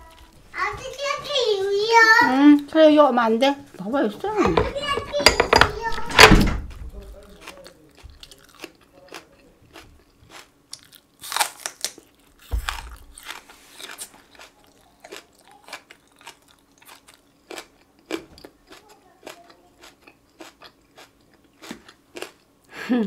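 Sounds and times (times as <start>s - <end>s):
crunching raw green onion: 7.3s - 22.4s.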